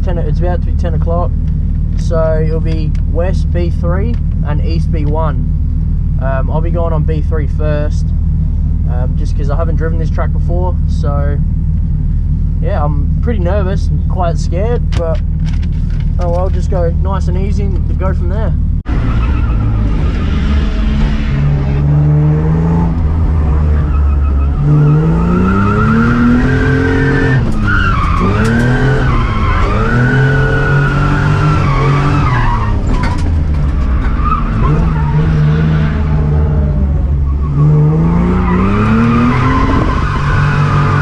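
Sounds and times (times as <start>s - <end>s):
car engine revving: 0.0s - 41.0s
tyre squeal: 23.3s - 36.3s.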